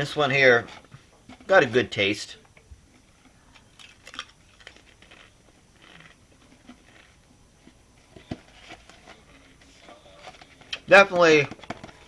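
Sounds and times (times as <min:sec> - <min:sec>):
chewing crisps: 0:03.0 - 0:07.9.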